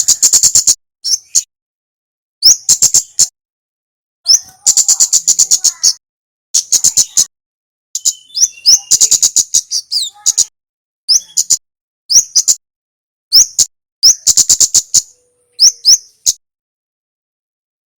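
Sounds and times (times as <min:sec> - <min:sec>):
bird chirps: 0:00.0 - 0:01.5, 0:02.4 - 0:03.4, 0:04.3 - 0:06.0, 0:06.6 - 0:07.3, 0:08.0 - 0:12.6, 0:13.3 - 0:16.4
bird calling with high ticks: 0:04.3 - 0:06.0, 0:08.0 - 0:12.6, 0:13.3 - 0:16.4.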